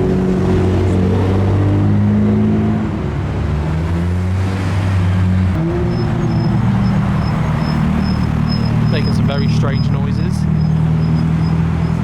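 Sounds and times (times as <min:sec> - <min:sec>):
car engine running: 0:05.4 - 0:12.0.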